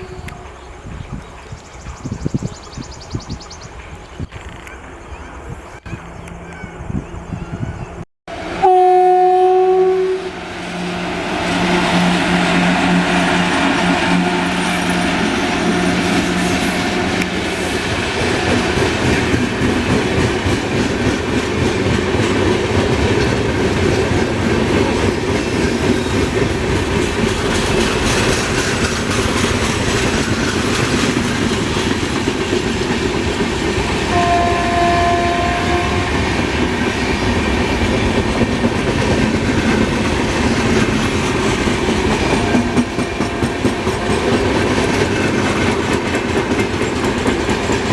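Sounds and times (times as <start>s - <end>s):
train wheels clattering: 11.2s - 47.9s.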